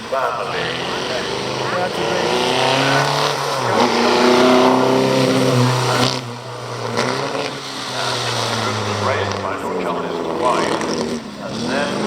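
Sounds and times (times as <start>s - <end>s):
gear change: 0.0s - 12.0s
racing car engine accelerating: 0.0s - 12.0s.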